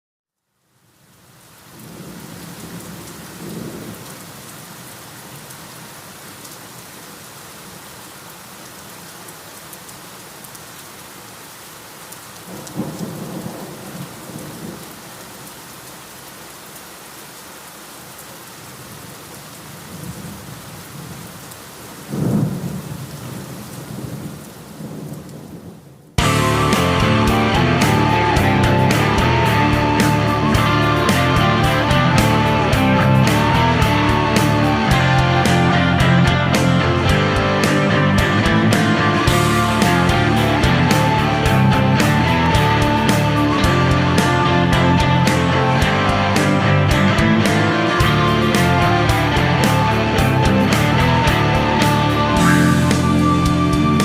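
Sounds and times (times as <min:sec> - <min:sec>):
steady rain: 0:00.4 - 0:54.0
thunder rolling: 0:01.8 - 0:04.1, 0:22.1 - 0:54.0
heavy rock band: 0:26.2 - 0:54.0.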